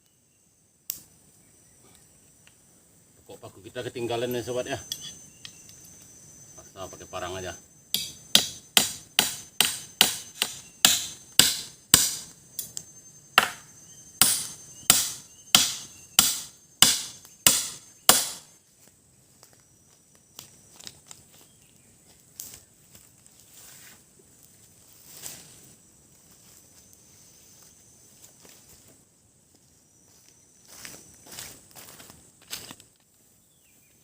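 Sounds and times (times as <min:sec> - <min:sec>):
insects trilling: 0:00.0 - 0:34.0
machete chopping into wood: 0:08.0 - 0:12.3, 0:13.4 - 0:18.5.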